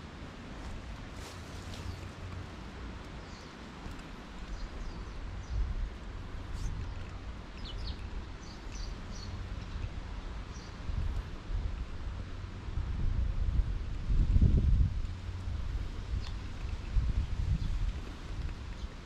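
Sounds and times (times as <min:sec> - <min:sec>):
wind rumble on microphone: 0:00.0 - 0:19.0
songbirds chirping: 0:00.6 - 0:11.3, 0:16.0 - 0:19.0.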